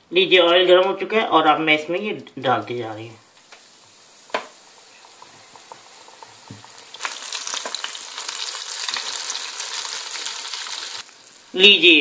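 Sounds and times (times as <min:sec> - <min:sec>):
chicken wings sizzling in hot oil: 0:02.8 - 0:12.0.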